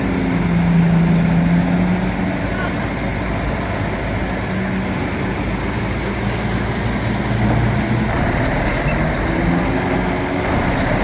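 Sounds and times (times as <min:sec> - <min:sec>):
bulldozer diesel engine drone: 0:05.3 - 0:11.0.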